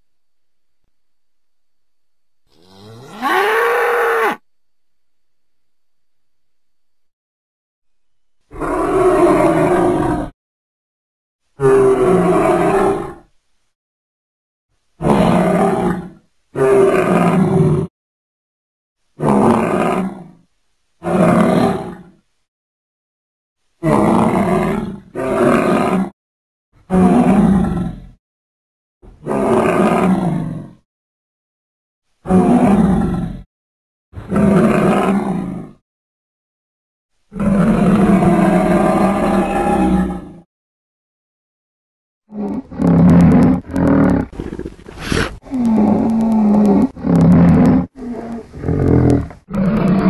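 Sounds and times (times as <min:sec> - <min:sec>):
animal roaring calls: 0:02.5 - 0:04.4, 0:08.5 - 0:10.3, 0:11.6 - 0:13.3, 0:15.0 - 0:17.9, 0:26.9 - 0:28.1, 0:29.2 - 0:30.8, 0:32.3 - 0:33.5, 0:34.2 - 0:35.8, 0:37.3 - 0:40.5, 0:42.3 - 0:50.0.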